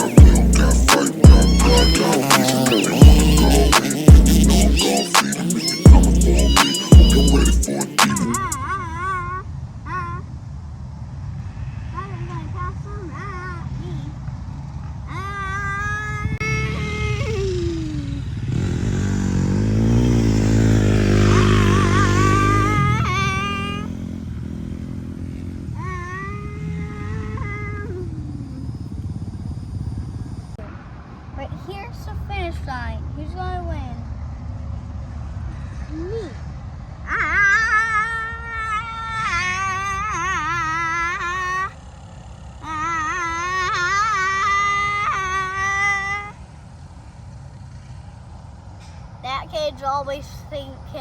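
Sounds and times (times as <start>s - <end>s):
child wailing: 0.0s - 10.3s, 11.9s - 14.1s, 15.1s - 18.3s, 21.0s - 24.0s, 25.7s - 28.5s, 37.0s - 41.9s, 42.6s - 46.4s
dirt bike revving past: 16.4s - 31.0s.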